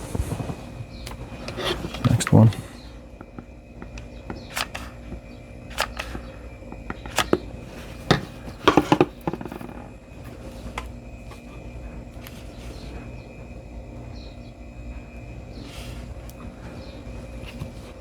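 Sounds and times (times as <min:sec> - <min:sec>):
faint steady hum: 0:00.0 - 0:18.0
battery cells clicking together: 0:03.2 - 0:08.9.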